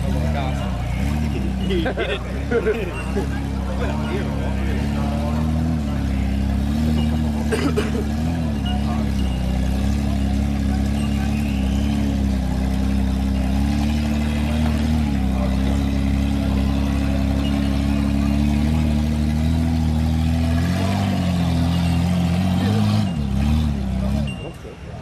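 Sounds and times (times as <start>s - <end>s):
engine running steadily: 0.0s - 25.0s.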